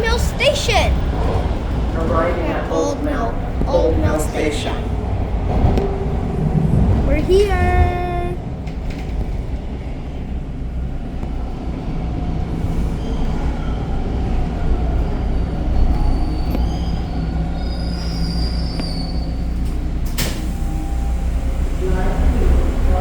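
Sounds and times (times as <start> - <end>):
train wheels rumbling on track: 0.0 - 23.0
high wheel squeal: 15.4 - 19.6.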